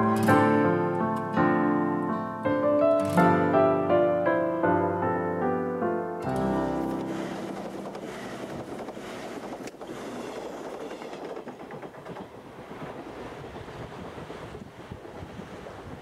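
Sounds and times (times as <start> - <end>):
electric train rumbling past: 6.3 - 16.0
wind buffeting microphone: 7.1 - 16.0.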